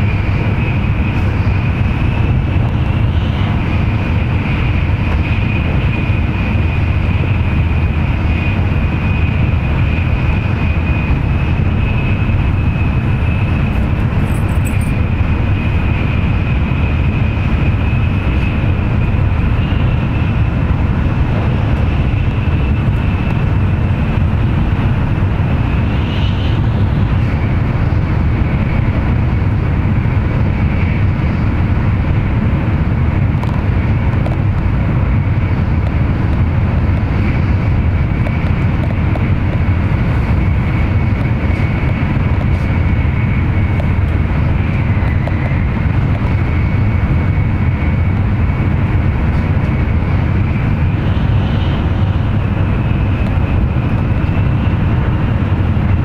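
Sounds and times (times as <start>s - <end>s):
high whine: 0.0s - 56.0s
train running gear rumble: 0.0s - 56.0s.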